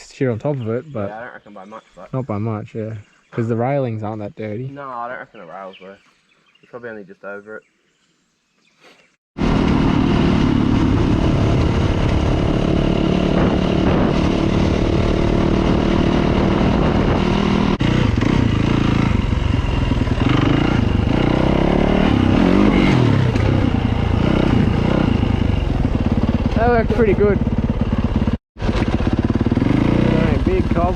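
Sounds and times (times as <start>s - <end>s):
dirt bike engine running: 9.4s - 30.9s.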